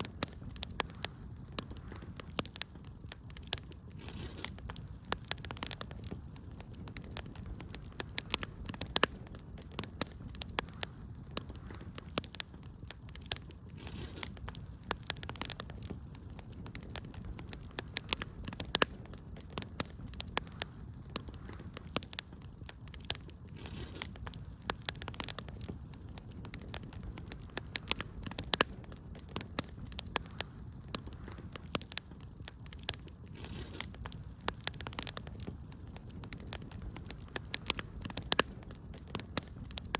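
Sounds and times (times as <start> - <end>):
low hiss of fire: 0.0 - 39.9
wood fire crackling: 0.0 - 39.9.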